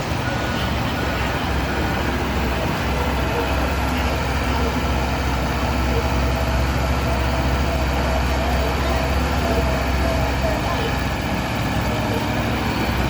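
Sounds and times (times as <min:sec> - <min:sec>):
heavy diesel machinery engines rumbling: 0:00.0 - 0:13.0.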